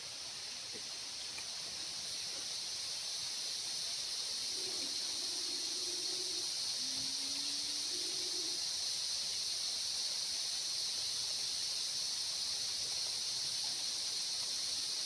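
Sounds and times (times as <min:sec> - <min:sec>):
insects chirping chorus: 0:00.0 - 0:15.0
low hooting calls: 0:04.5 - 0:08.6.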